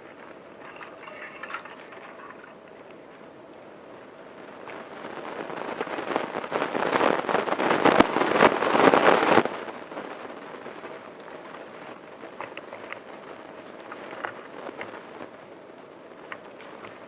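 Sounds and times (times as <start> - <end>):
dense crackling rustling noise: 0.0 - 17.0.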